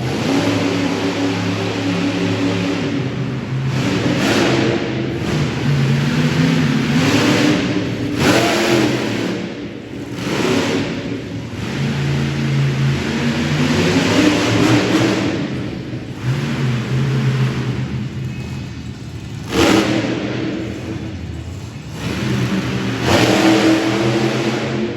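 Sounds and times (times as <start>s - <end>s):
truck engine revving hard: 0.0s - 24.9s.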